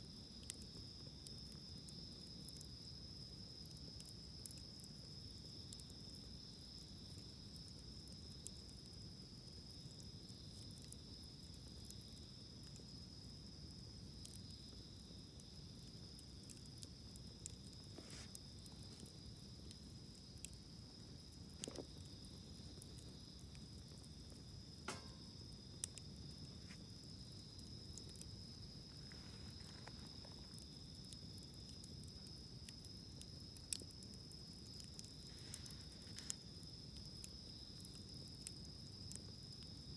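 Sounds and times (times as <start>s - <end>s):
campfire crackling: 0.0s - 39.9s
crickets trilling: 0.0s - 39.9s.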